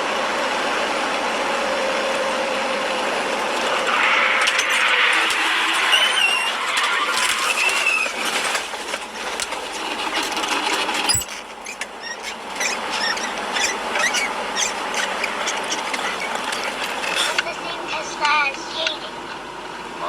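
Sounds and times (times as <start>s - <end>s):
vehicle noise: 0.0s - 20.0s
short wavering squeal: 11.1s - 11.4s.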